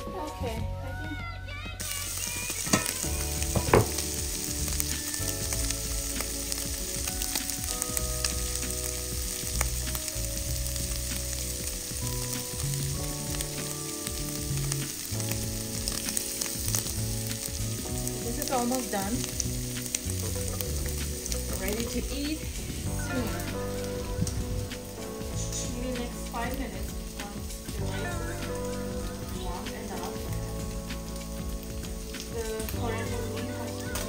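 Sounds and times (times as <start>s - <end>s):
food sizzling in hot oil: 1.6s - 34.0s
sharp knocks: 3.5s - 4.0s.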